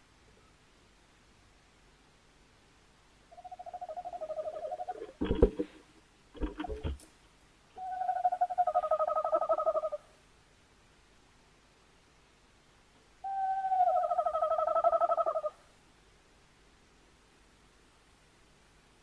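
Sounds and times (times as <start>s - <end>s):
owl hooting: 3.3s - 5.4s, 7.8s - 10.1s, 13.2s - 15.6s
short rough owl calls: 3.3s - 5.6s, 7.8s - 10.2s, 13.2s - 15.7s.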